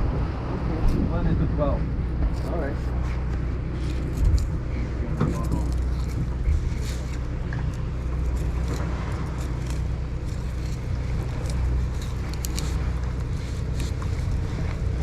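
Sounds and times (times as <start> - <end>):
boat engine droning: 0.0 - 15.0
water noise: 0.0 - 15.0
wind: 0.0 - 15.0.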